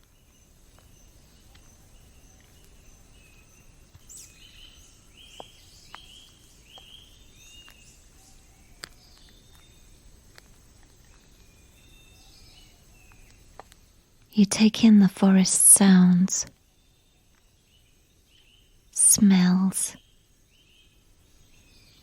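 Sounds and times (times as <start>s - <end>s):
bird chirping: 0.0s - 10.0s, 11.1s - 22.0s
high insect drone: 19.0s - 20.8s.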